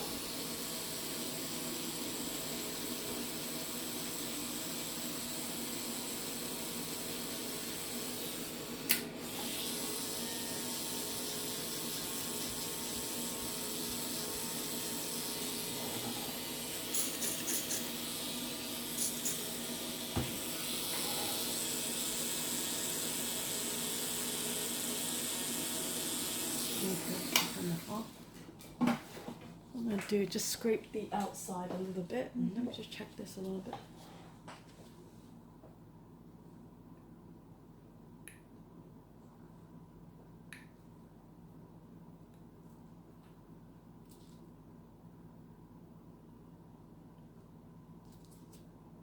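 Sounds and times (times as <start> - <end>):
drill hissing with faint whine: 9.3 - 27.6.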